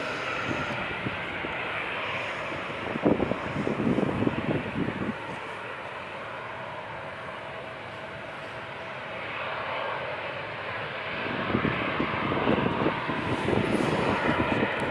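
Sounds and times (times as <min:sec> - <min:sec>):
jet airliner engines: 0:00.0 - 0:14.9.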